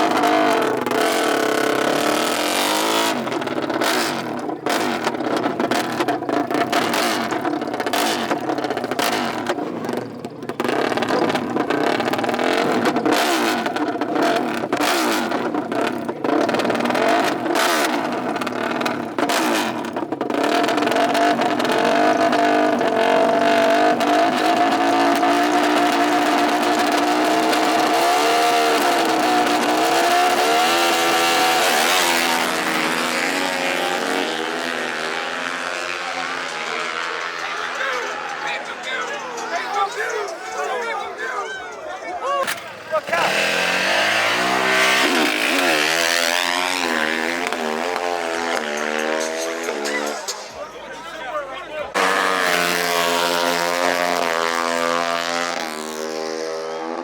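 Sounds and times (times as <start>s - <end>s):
racing engines revving: 0.0s - 57.0s.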